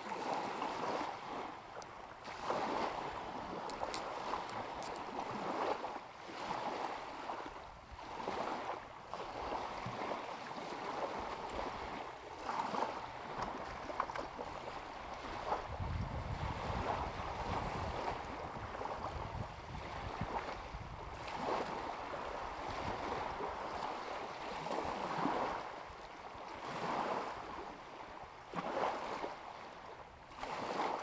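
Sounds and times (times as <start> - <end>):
waves lapping at shore: 0.0 - 31.0
wind buffeting microphone: 14.5 - 23.9.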